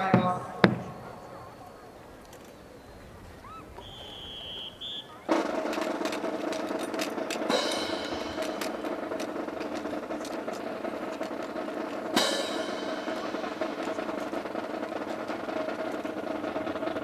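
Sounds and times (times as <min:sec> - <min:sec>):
background murmur: 0:00.0 - 0:17.0
rifles clacking and tapping: 0:00.0 - 0:17.0
loud ringing strike: 0:04.3 - 0:17.0.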